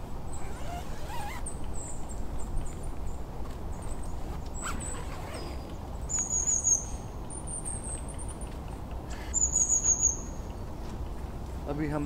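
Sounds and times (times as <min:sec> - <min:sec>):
songbird trilling: 0:05.3 - 0:07.7, 0:09.2 - 0:10.4.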